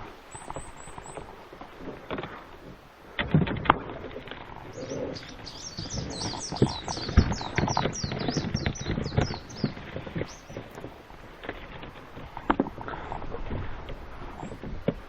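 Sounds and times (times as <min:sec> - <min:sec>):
small bird chirping: 0:00.3 - 0:01.4, 0:04.6 - 0:10.9.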